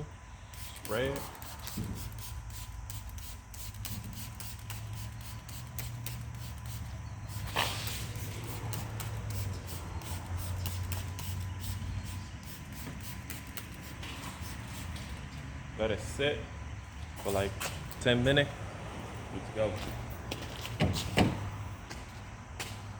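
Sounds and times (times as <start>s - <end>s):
steady low hum: 0.0s - 22.9s
trigger spray bottle spraying: 0.5s - 15.2s.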